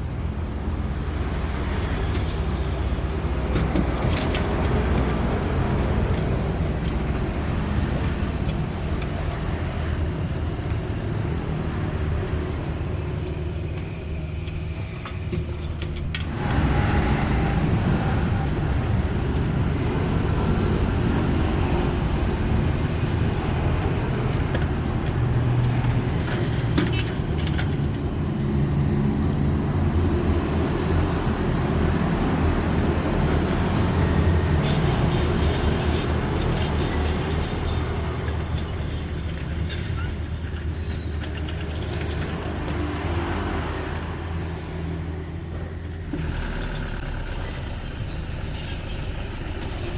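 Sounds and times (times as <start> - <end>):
excavator diesel engine running: 0.1 - 26.6.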